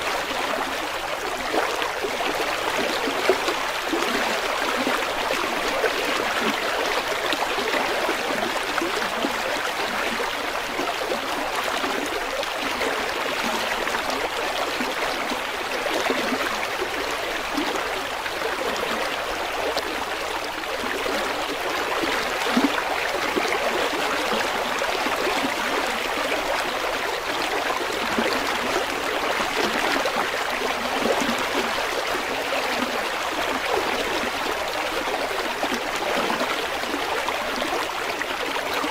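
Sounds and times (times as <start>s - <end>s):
river water flowing over stones: 0.0s - 38.9s.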